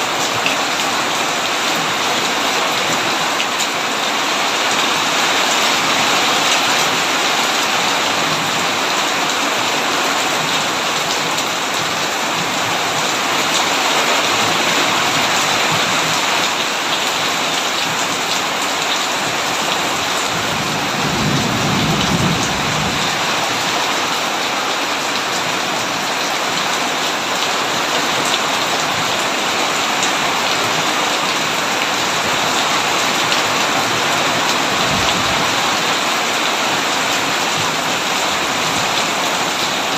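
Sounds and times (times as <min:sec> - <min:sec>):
heavy rain on a tin roof: 0:00.0 - 0:39.9
low thunder rumbling: 0:20.3 - 0:23.6.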